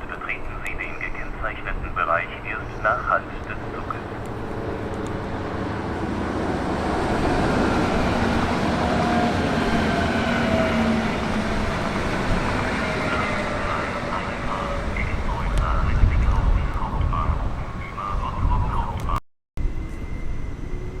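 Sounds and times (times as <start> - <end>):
train rumbling past: 0.0 - 21.0
faint falling whining tones: 19.6 - 21.0.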